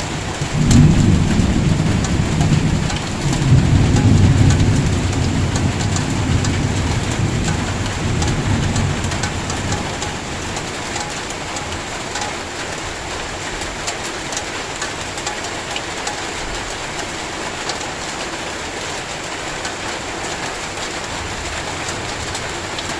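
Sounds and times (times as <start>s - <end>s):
heavy rain falling: 0.0s - 22.9s
drops ticking on hard surface: 0.6s - 12.8s, 13.8s - 17.9s.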